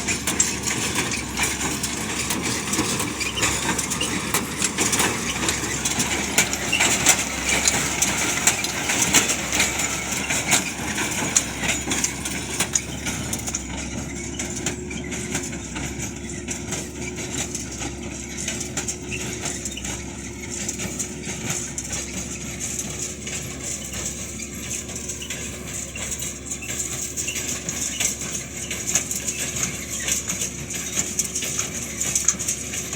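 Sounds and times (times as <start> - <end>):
metallic clinking and rattling: 0.0 - 14.8
tractor and baler humming: 0.0 - 32.9.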